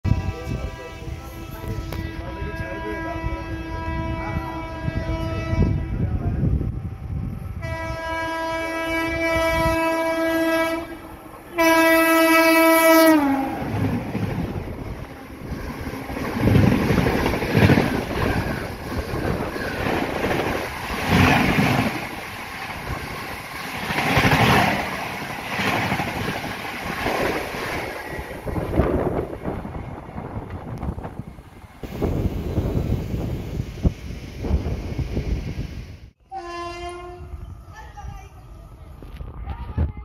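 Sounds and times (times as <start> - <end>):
locomotive horn blasts: 0.1 - 5.9, 7.6 - 13.6, 36.2 - 37.4.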